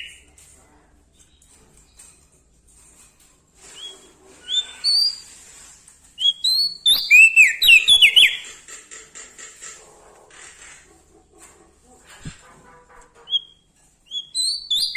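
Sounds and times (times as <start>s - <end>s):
songbird whistling: 6.2s - 8.4s, 13.3s - 14.9s.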